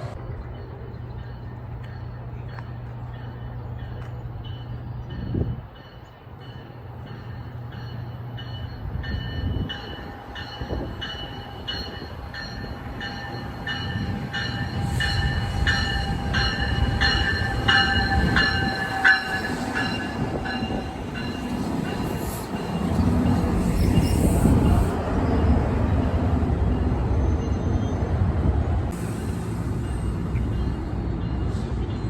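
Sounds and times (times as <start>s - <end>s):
freight train rumbling: 0.0s - 32.0s
train bell ringing: 0.7s - 25.0s.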